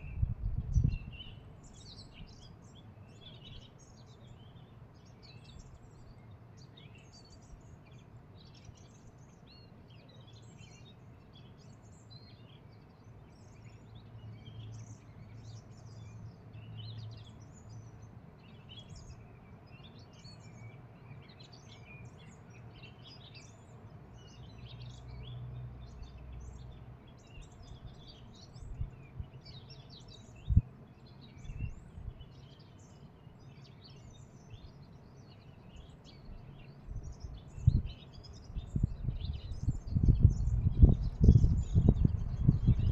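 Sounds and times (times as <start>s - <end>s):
small birds chirping: 0.0s - 42.9s
low outdoor rumble: 38.7s - 42.9s.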